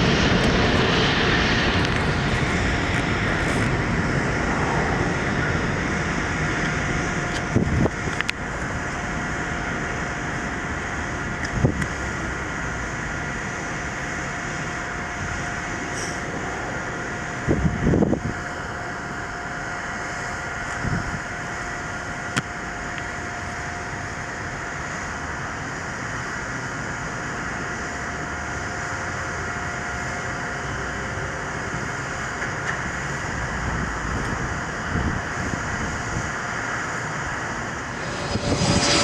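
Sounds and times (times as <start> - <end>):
jet engines rushing: 0.0 - 39.0.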